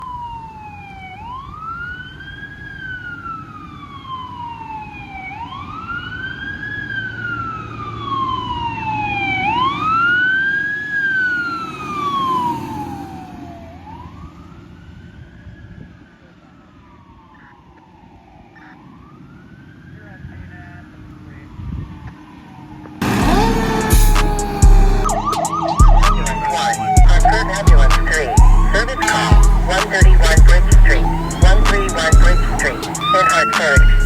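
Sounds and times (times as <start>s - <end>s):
fire engine siren wailing: 0.0s - 34.0s
truck engine rumbling: 23.0s - 34.0s.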